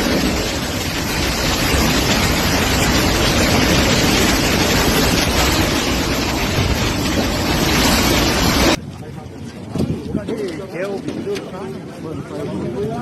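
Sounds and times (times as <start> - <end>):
rain: 0.0 - 9.0
storm wind: 0.0 - 13.0
wind buffeting microphone: 0.0 - 13.0.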